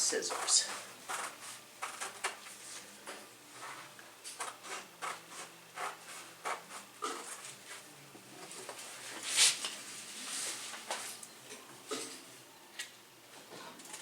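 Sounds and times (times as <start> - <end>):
scissors cutting fabric: 0.2 - 2.4, 4.3 - 7.4.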